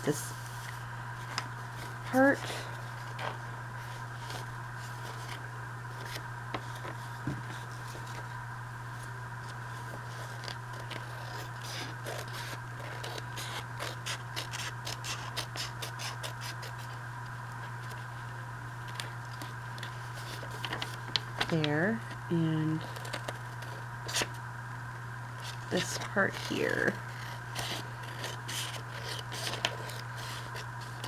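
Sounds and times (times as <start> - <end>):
steady low hum: 0.0 - 31.0
scissors snipping paper: 9.4 - 17.0, 25.4 - 31.0.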